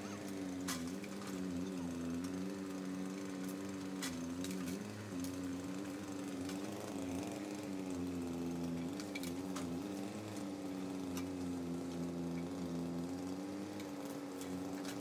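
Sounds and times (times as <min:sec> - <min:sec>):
sharp clicks and knocks: 0:00.0 - 0:07.0, 0:08.6 - 0:10.5, 0:13.6 - 0:15.0
diesel engine running: 0:00.0 - 0:15.0.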